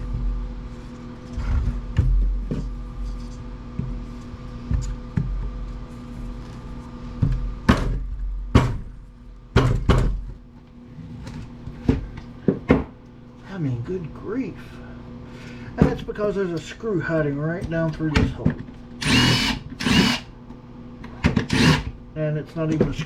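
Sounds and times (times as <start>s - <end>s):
knocks and clunks of planer housing: 9.5s - 10.4s.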